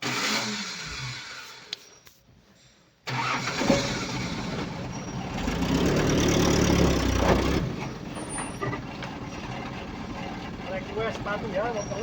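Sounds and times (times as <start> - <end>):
engine noise: 3.1 - 12.0
heavy diesel engine throbbing: 4.6 - 12.0.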